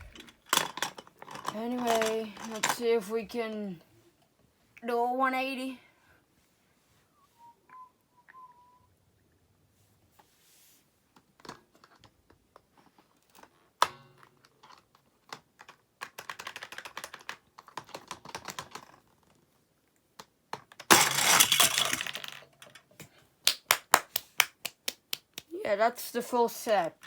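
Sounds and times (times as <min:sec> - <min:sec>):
plastic toys clicking and clattering: 0:00.0 - 0:03.6, 0:11.4 - 0:19.5, 0:20.2 - 0:24.3.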